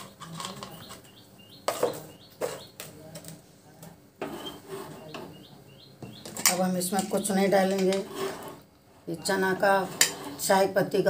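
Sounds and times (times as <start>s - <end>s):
small birds chirping: 0.0s - 3.2s, 4.3s - 8.0s.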